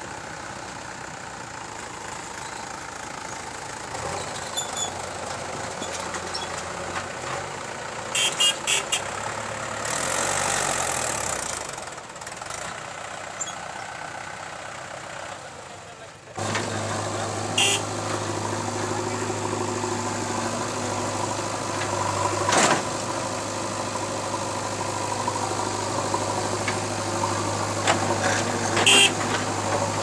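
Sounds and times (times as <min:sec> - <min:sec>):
backhoe diesel engine running: 0:00.0 - 0:30.0
tractor engine running: 0:00.0 - 0:30.0.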